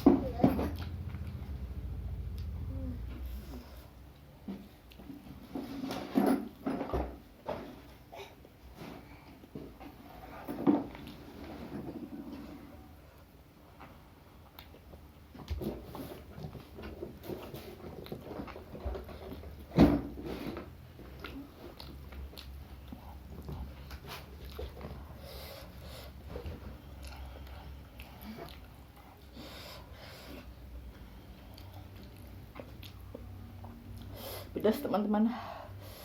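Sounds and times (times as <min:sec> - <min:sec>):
chewing and crunching food: 0:13.7 - 0:19.6, 0:20.5 - 0:34.1.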